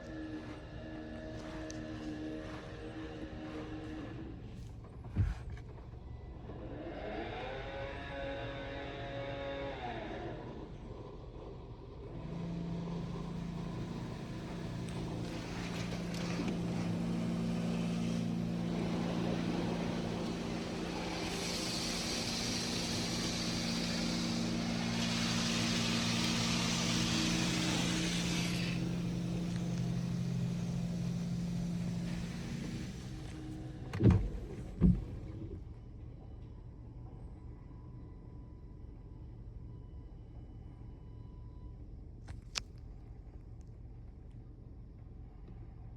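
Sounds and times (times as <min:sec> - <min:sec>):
car wash machine hum: 0:12.0 - 0:35.6
water spraying on car: 0:12.6 - 0:33.6.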